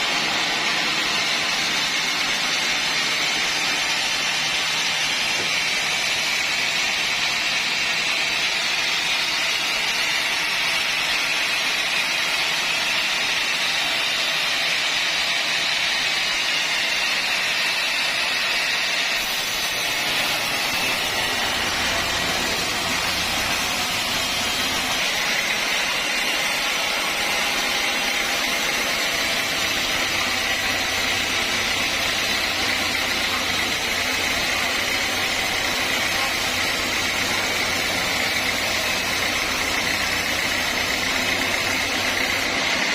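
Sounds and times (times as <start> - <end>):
sawmill saw rasping whine: 0.0 - 42.9.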